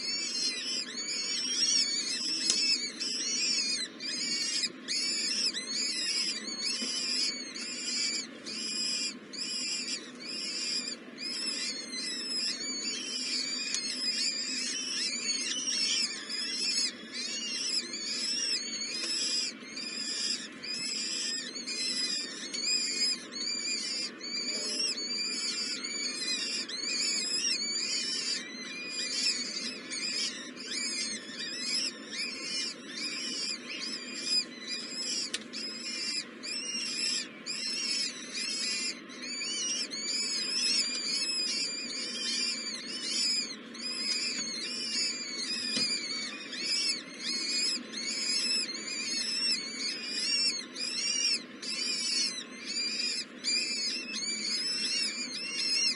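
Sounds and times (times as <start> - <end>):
baby birds calling: 0.0 - 55.9.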